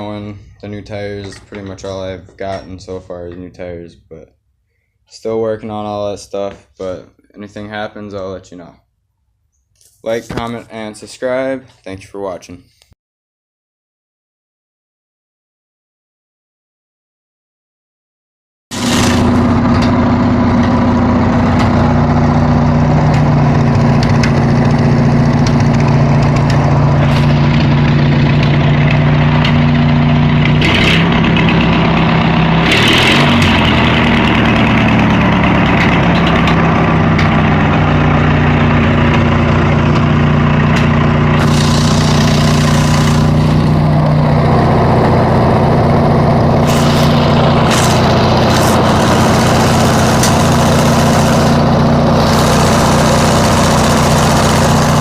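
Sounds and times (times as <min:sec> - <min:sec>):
riding lawn mower engine: 0:18.7 - 0:55.0.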